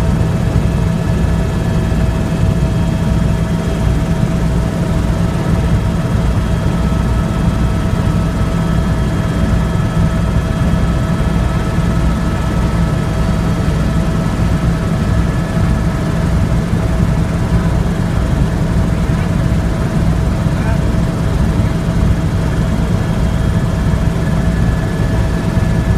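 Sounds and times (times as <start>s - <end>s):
helicopter rotor and engine drone: 0.0s - 25.9s.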